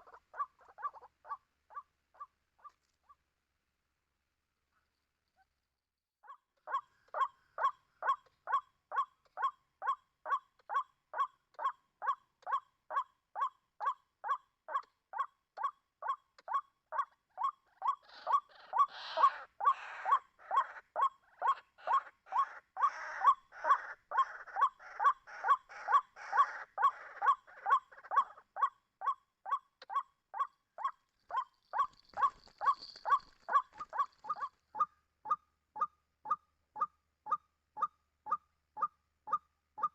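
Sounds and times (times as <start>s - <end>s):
bird repeated kwak call: 16.1s - 39.9s
harsh noisy bird calling: 17.4s - 28.4s, 29.0s - 34.9s.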